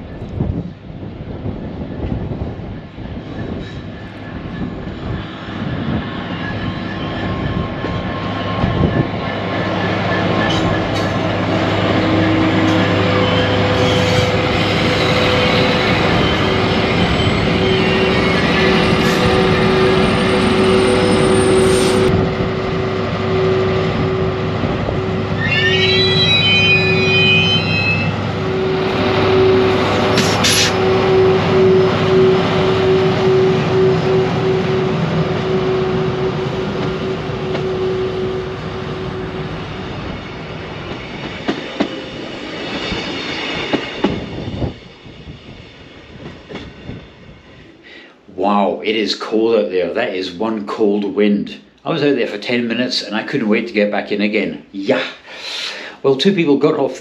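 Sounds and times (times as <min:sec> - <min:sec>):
diesel locomotive engine droning: 0:00.0 - 0:48.4
train wheel squeal: 0:02.8 - 0:22.2, 0:24.9 - 0:39.5, 0:40.2 - 0:47.1
train wheels clicking: 0:29.8 - 0:31.2, 0:40.5 - 0:44.7.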